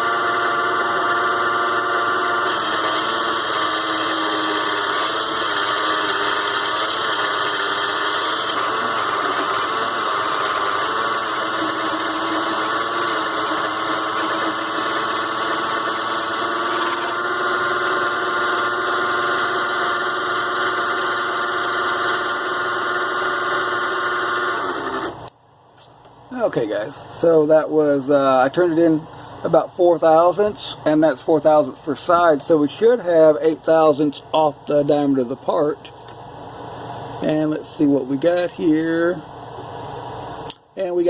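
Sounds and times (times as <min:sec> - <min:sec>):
lathe motor whining: 0:00.0 - 0:25.3.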